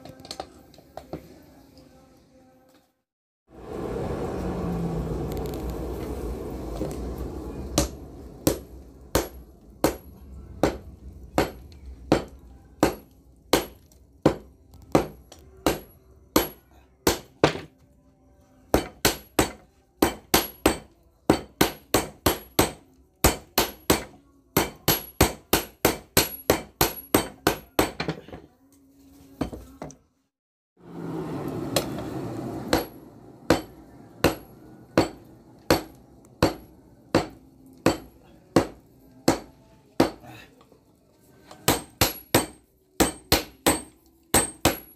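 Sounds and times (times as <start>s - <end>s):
hammer striking steel on anvil: 7.8s - 17.7s, 18.7s - 28.4s, 32.7s - 40.2s, 41.6s - 44.9s.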